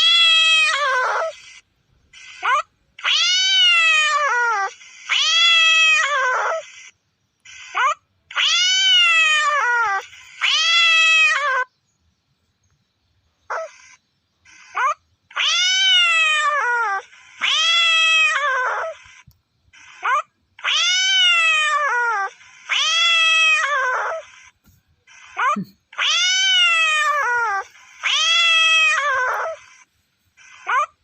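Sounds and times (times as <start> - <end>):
cat meowing: 0.0 - 1.4, 2.4 - 6.6, 7.7 - 11.7, 14.7 - 19.0, 19.8 - 24.4, 25.2 - 29.8.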